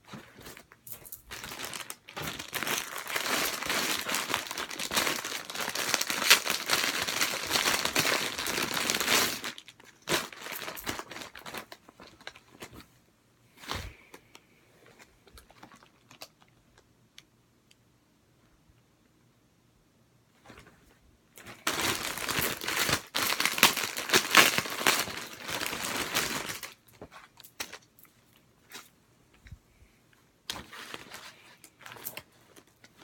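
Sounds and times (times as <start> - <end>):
packaging crinkling and rustling: 0.0 - 12.9, 14.8 - 16.8, 21.4 - 29.0, 30.5 - 33.0.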